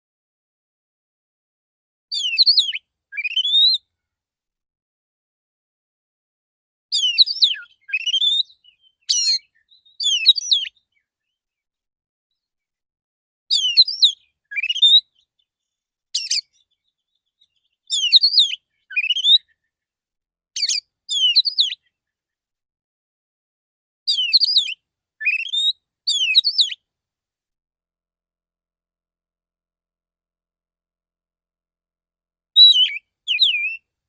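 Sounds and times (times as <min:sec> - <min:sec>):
magpie-robin singing whistled notes: 0:02.1 - 0:03.9, 0:06.9 - 0:11.4, 0:13.5 - 0:19.8, 0:20.6 - 0:22.2, 0:24.1 - 0:26.8, 0:32.6 - 0:33.9.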